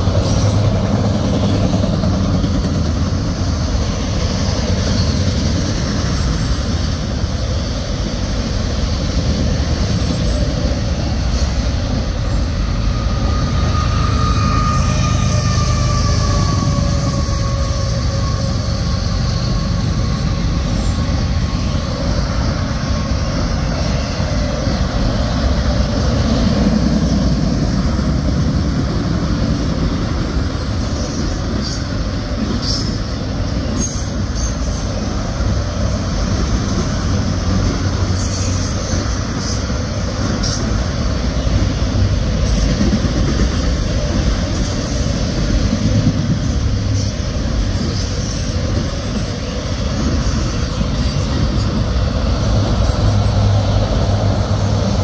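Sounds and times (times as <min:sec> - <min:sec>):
train rumbling on rails: 0:00.0 - 0:55.0
faint wheel squeal: 0:12.2 - 0:22.1.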